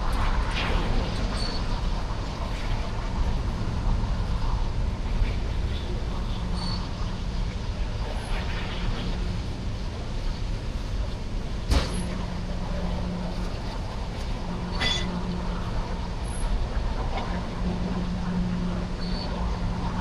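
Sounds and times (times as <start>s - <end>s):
freight train rolling by: 0.0s - 20.0s
train clanks: 14.6s - 15.4s
high squeal: 14.7s - 15.1s.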